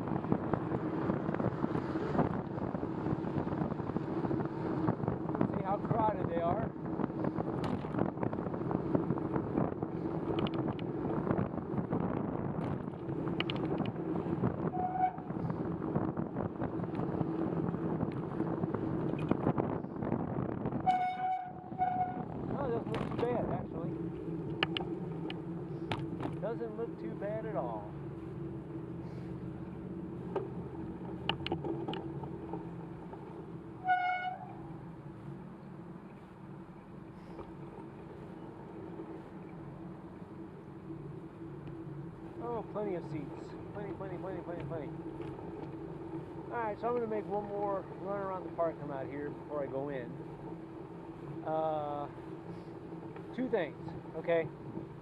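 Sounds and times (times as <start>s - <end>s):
wind over microphone: 0.0s - 26.6s
traffic hum: 0.0s - 55.0s
car horn beep: 14.7s - 15.3s, 20.8s - 22.3s, 33.8s - 34.5s
tyres on wet pavement: 21.5s - 55.0s.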